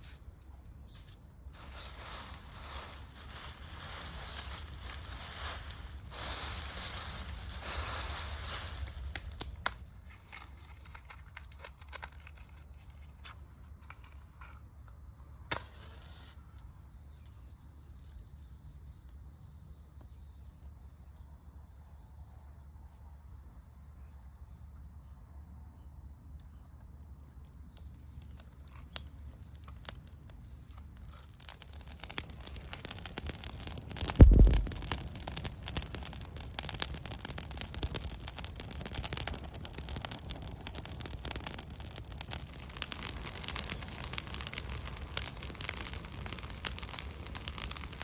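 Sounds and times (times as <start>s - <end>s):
rustling and crackling: 0.0s - 15.0s, 27.8s - 48.0s
insect chirping: 0.0s - 48.0s
low outdoor rumble: 30.2s - 48.0s
sharp clicks: 31.4s - 48.0s.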